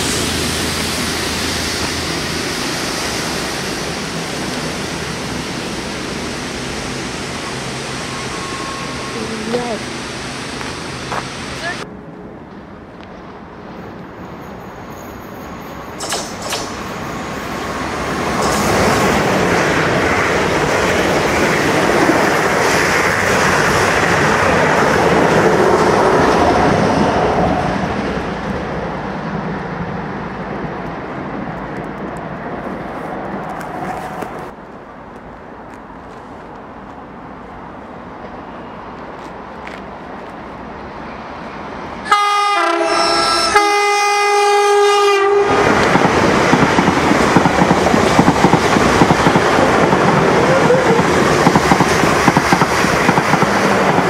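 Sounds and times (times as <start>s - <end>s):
train wheels rushing on rails: 0.0s - 11.9s, 12.6s - 54.0s
train horn: 42.0s - 45.6s.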